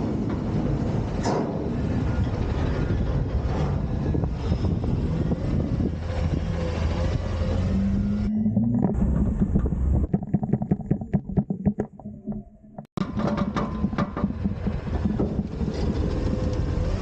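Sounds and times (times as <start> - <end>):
diesel engine running hard: 0.0 - 8.3.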